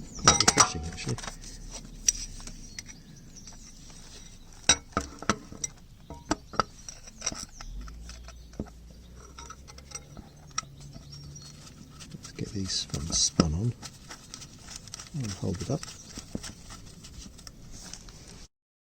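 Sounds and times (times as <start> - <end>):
tools clinking on metal: 0.2 - 1.3.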